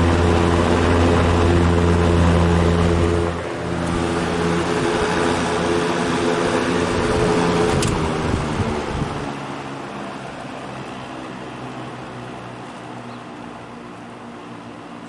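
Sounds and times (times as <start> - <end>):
box fan whirring: 0.0 - 15.0
fan switch click: 7.7 - 8.1.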